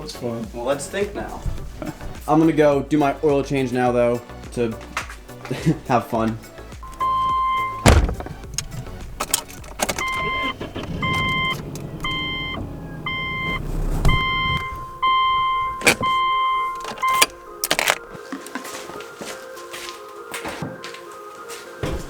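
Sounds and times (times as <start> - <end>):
sharp clicks and knocks: 6.8 - 12.2, 15.6 - 18.1
car warning chime dinging: 6.8 - 18.1.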